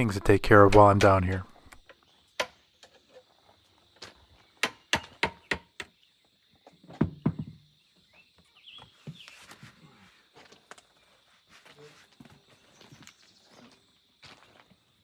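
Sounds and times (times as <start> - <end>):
sharp knocks and thuds: 0.4 - 1.5, 6.9 - 7.6.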